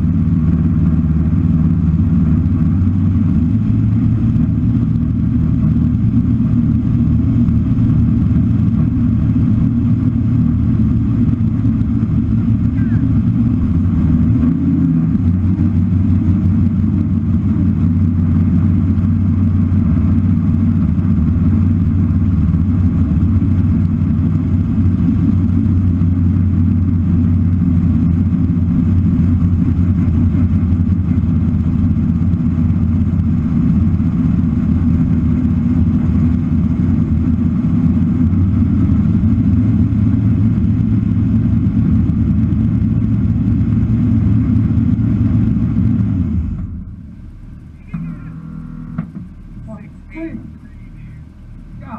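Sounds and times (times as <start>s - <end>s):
car engine rumbling at low speed: 0.0s - 51.9s.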